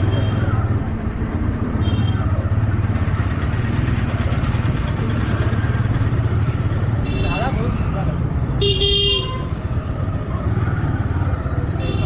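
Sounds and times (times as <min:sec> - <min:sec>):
motorcycle engine running: 0:00.0 - 0:07.3
road noise: 0:00.0 - 0:12.0.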